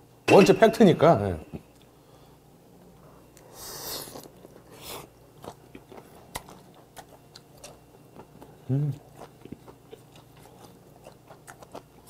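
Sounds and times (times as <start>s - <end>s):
soft wet chewing: 2.8s - 12.0s.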